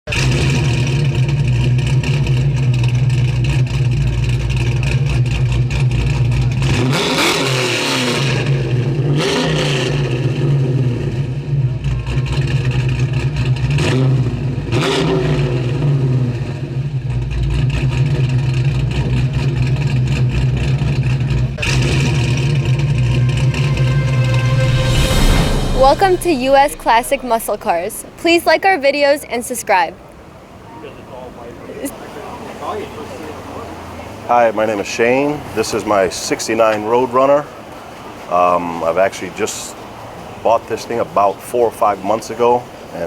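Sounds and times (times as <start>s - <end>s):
car engine idling and revving: 0.0s - 25.2s.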